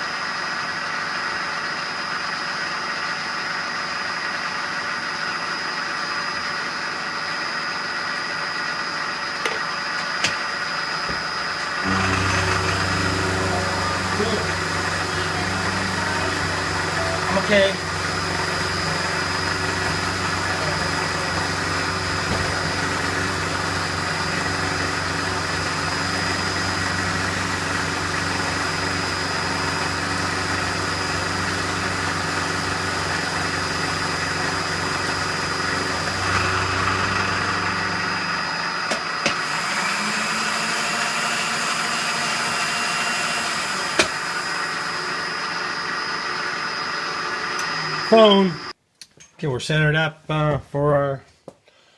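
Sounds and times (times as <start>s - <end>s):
milling machine humming: 11.3s - 48.7s.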